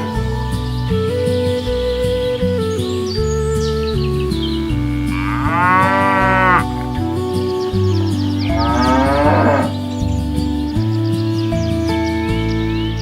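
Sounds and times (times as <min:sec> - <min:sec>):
background music: 0:00.0 - 0:13.0
cattle mooing: 0:04.9 - 0:07.0, 0:08.4 - 0:09.8.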